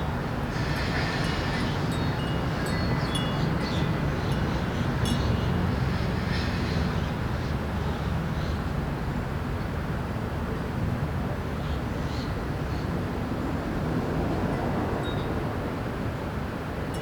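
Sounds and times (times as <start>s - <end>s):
city traffic hum: 0.0s - 17.0s
wind chime ringing: 1.3s - 4.5s.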